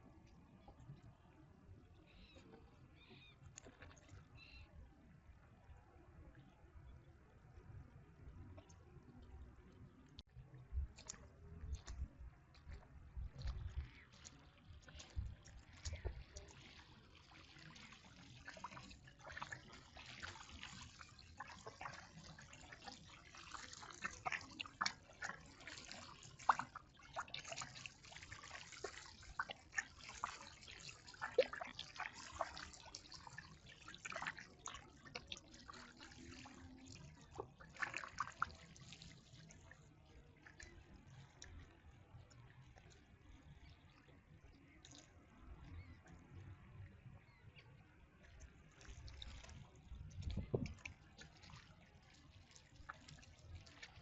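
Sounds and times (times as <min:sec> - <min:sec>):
water dripping and trickling: 0:02.0 - 0:04.6, 0:08.3 - 0:54.0.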